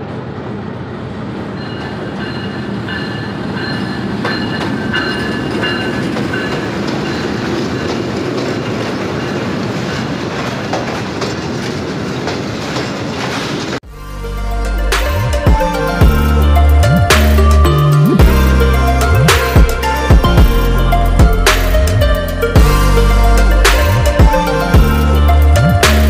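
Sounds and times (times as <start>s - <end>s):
train engine and wheels rumbling: 0.0s - 13.9s
wheels clicking over rail joints: 1.6s - 13.8s.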